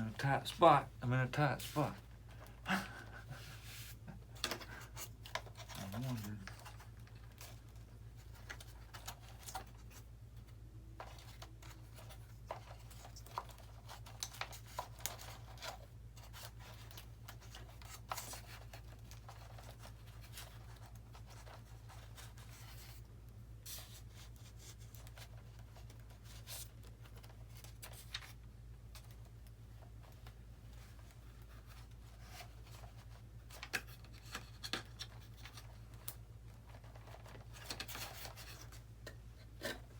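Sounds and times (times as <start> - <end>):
handling clicks and scratches: 24.2 - 39.9.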